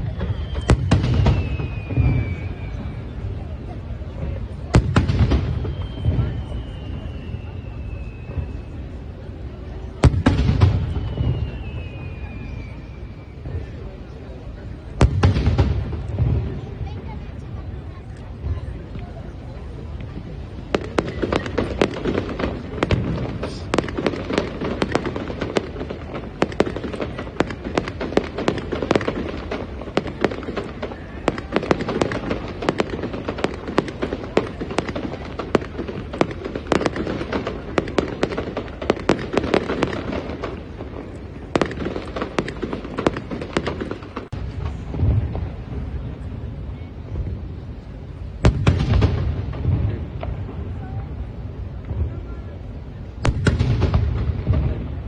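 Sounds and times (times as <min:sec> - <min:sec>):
deep fireworks booms: 0:00.0 - 0:55.0
fireworks bangs and crackles: 0:00.0 - 0:55.0.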